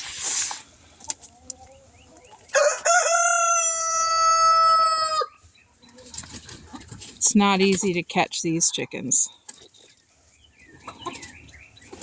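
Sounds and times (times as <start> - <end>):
rooster crowing: 2.5 - 5.4.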